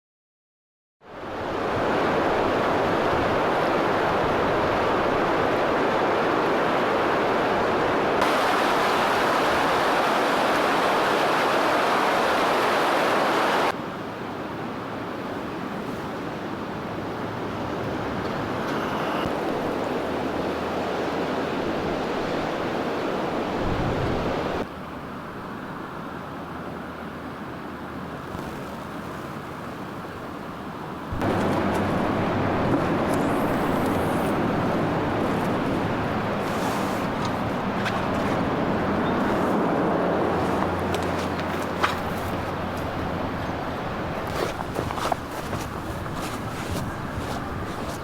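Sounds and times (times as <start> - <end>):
outdoor rushing noise: 31.1 - 48.0.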